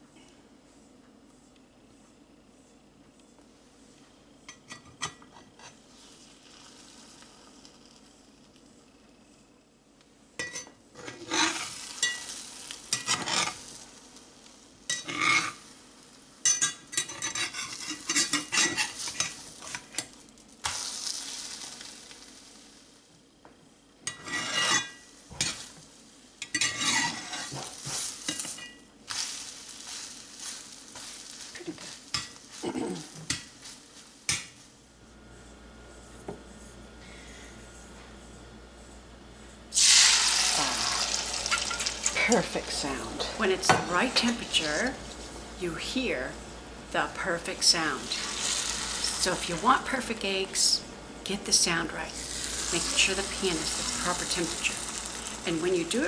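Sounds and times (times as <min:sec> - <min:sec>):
eggs sizzling in hot oil: 0:34.9 - 0:56.0
utensil scraping and clattering: 0:35.0 - 0:56.0.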